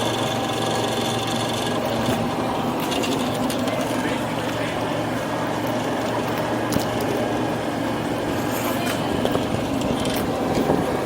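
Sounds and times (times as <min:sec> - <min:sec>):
small motor running: 0:00.0 - 0:04.8.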